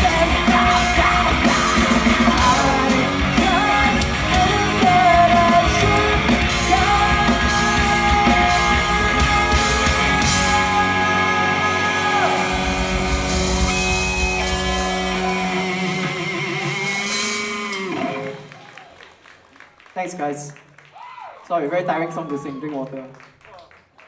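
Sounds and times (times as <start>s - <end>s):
person singing and yelling: 0.0s - 18.4s
rock band playing: 0.0s - 18.6s.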